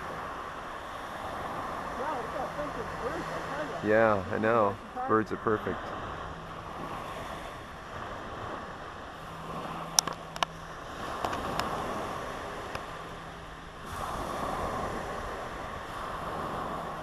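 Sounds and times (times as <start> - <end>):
ocean surf washing: 0.0 - 17.0.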